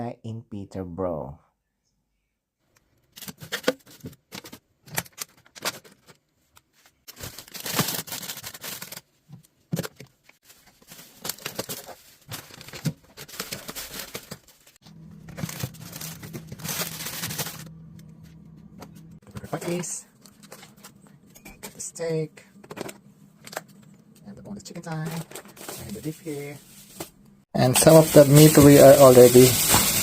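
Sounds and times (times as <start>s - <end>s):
plastic packaging crinkling: 7.1s - 9.1s, 9.8s - 17.7s, 27.6s - 30.0s
steady low hum: 14.8s - 29.1s.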